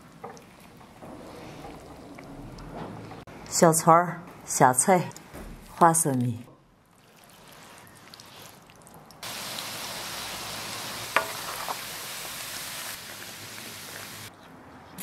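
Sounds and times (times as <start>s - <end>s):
oil sizzling in a wok: 9.2s - 14.3s.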